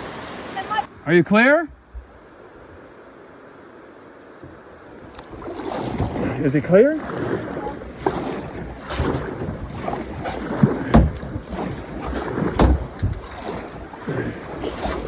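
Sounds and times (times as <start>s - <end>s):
kayak on creek water: 0.0s - 15.0s
dull thumps: 5.2s - 15.0s
wind buffeting microphone: 5.3s - 15.0s.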